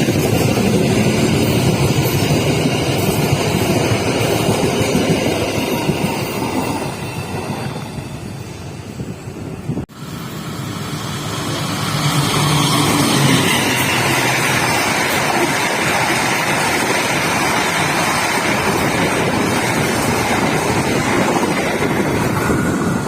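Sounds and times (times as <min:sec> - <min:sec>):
train passing close by: 0:00.0 - 0:23.0.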